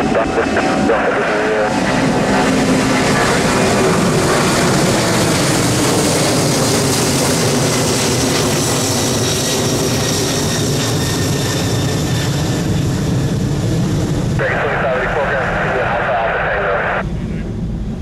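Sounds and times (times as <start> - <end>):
jet engine rush: 0.0 - 18.0
faint high whine: 14.4 - 18.0.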